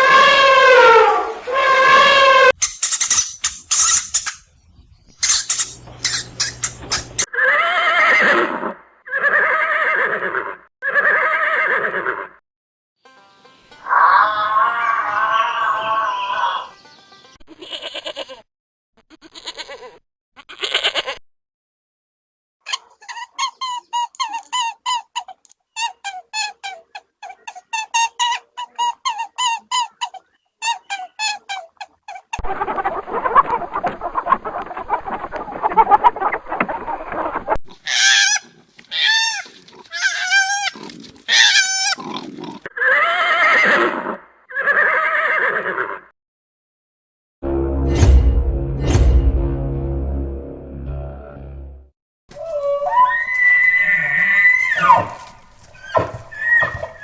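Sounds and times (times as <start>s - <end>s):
short squeaky animal calls: 1.8s - 4.5s, 5.2s - 8.5s, 52.4s - 57.0s
horse whinnying: 7.2s - 12.4s, 13.9s - 16.7s, 37.8s - 46.1s, 52.4s - 57.0s
short sharp sounds: 47.4s - 51.0s.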